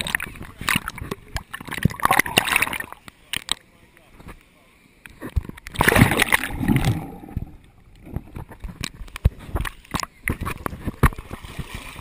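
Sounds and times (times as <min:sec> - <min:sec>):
water splashing and sloshing: 0:00.0 - 0:03.6, 0:05.1 - 0:12.0.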